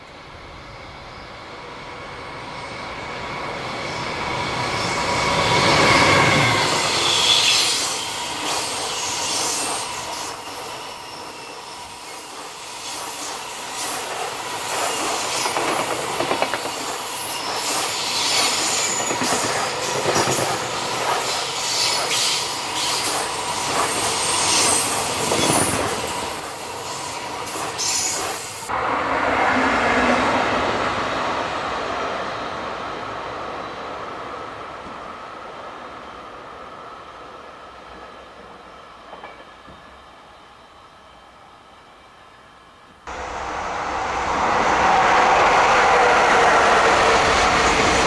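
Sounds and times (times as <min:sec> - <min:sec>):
high-pitched wheel squeal: 0:02.5 - 0:20.5, 0:21.2 - 0:28.7
train wheels clattering: 0:12.4 - 0:28.7.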